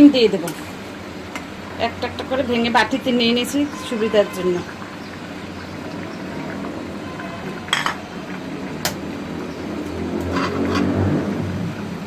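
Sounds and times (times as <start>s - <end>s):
utensils clinking against pot: 7.7s - 8.0s.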